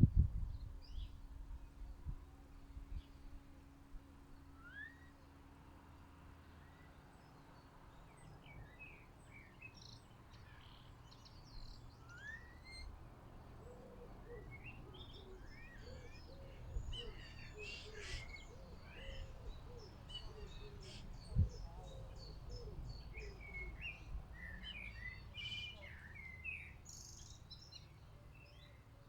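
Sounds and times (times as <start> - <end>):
small birds chirping: 7.6 - 28.9.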